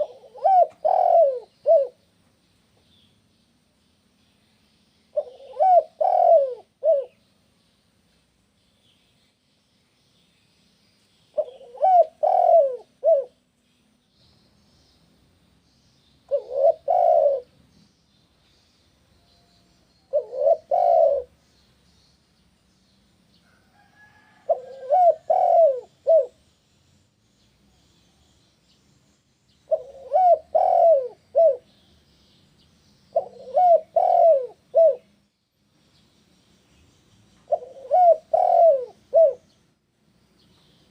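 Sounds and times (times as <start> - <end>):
dove cooing: 0.0 - 2.0, 5.1 - 7.2, 11.4 - 13.4, 16.3 - 17.6, 20.1 - 21.4, 24.2 - 26.4, 29.7 - 31.7, 33.1 - 35.1, 37.5 - 39.6
small birds chirping: 0.0 - 40.9.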